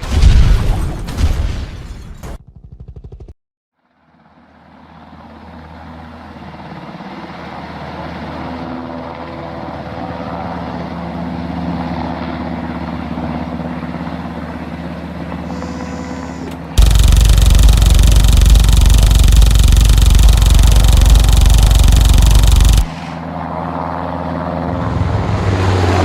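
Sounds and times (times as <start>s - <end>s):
helicopter engine and rotor: 4.3s - 15.5s, 16.8s - 26.0s
loud dense engine-like sound: 16.7s - 26.0s.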